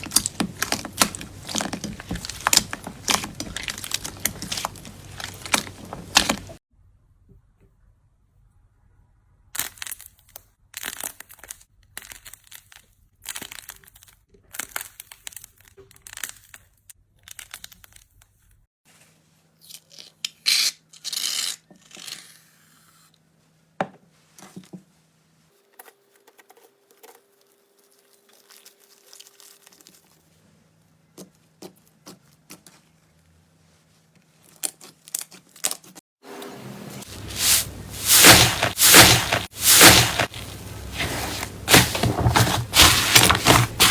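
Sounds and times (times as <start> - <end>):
slime squeezed by hand: 0.0 - 6.6, 37.0 - 43.9.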